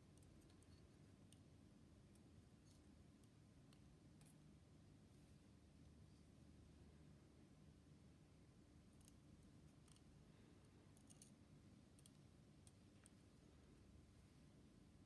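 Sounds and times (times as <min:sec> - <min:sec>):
low steady hum: 0:00.0 - 0:15.0
faint small clicks: 0:00.1 - 0:01.5, 0:09.0 - 0:10.1, 0:10.9 - 0:13.3.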